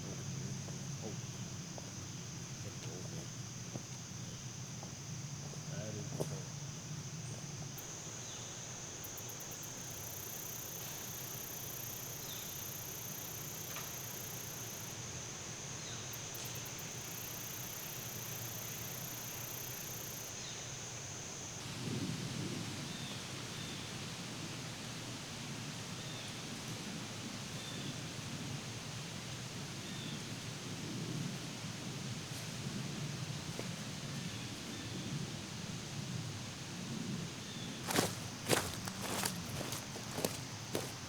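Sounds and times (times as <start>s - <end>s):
insects buzzing: 0.0s - 21.7s, 32.2s - 41.0s
high-pitched insect trill: 3.4s - 20.7s.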